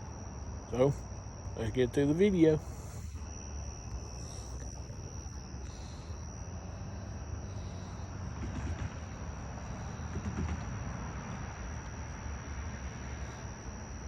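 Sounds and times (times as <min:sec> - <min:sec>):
insect chirring: 0:00.0 - 0:14.0
distant diesel locomotives rumbling: 0:06.8 - 0:13.8.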